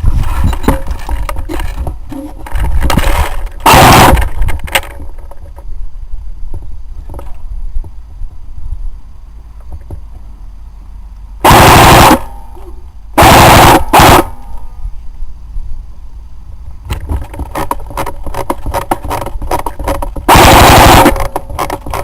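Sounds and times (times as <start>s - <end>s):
automatic airsoft gunfire: 3.7s - 4.2s, 11.5s - 12.3s, 13.2s - 14.4s, 20.3s - 21.3s.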